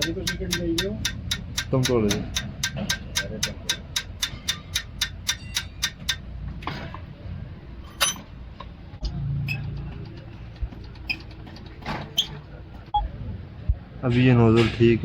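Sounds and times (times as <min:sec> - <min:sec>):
rapid mechanical ticking: 0:00.0 - 0:06.3, 0:09.6 - 0:12.6.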